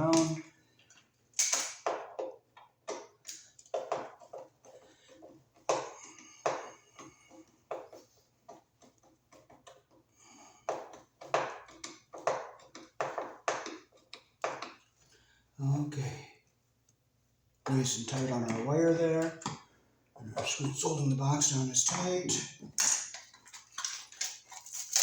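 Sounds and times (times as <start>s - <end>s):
screwdriver clicking and scraping: 7.0s - 10.0s, 10.7s - 13.0s.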